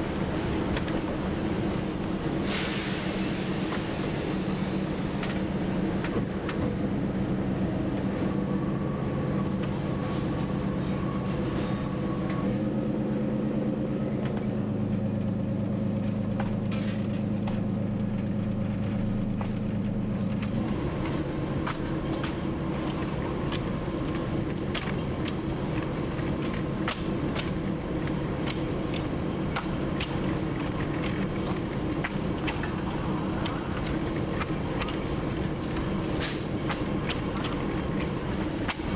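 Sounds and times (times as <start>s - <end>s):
locomotive diesel engine running: 0.0s - 38.9s
wheels clicking on track: 14.2s - 38.9s.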